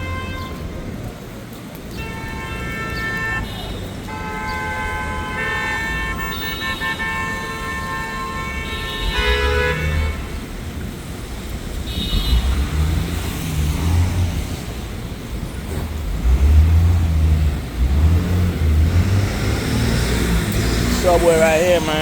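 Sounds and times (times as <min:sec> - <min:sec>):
car horn: 0:00.0 - 0:00.6, 0:02.0 - 0:10.5, 0:11.9 - 0:12.7
vehicle engines rumbling: 0:00.0 - 0:22.0.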